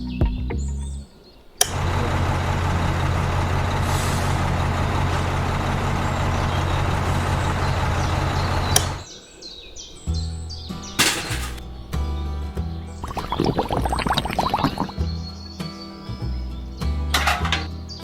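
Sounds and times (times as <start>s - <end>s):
vehicle engine running: 1.7s - 9.0s.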